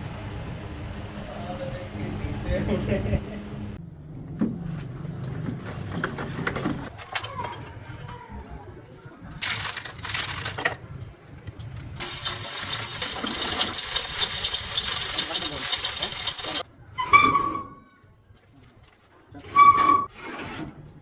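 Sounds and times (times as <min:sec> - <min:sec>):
small metal pieces clinking: 0:09.4 - 0:10.8.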